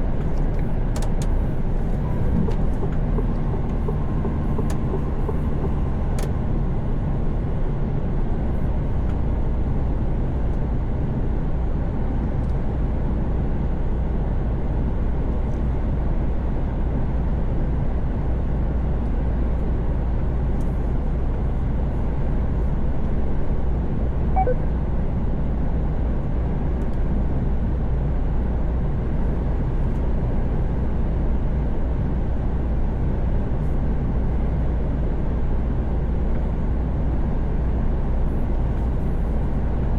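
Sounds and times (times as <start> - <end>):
truck engine hum: 0.0 - 18.3, 19.0 - 39.9
short faint beep: 24.4 - 24.8.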